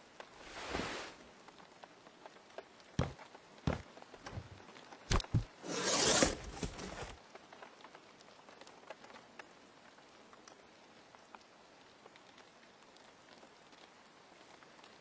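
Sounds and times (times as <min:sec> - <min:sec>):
rustling scraping noise: 0:00.4 - 0:01.3, 0:03.0 - 0:07.2
light knocks: 0:03.0 - 0:07.2.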